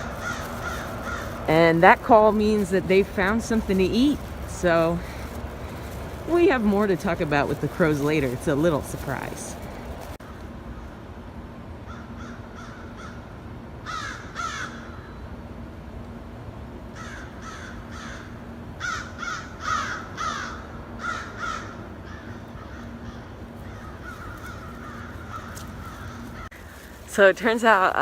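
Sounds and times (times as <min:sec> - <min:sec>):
crows cawing: 0:00.0 - 0:02.7, 0:03.4 - 0:06.2, 0:11.9 - 0:13.2, 0:13.8 - 0:15.0, 0:17.0 - 0:27.0.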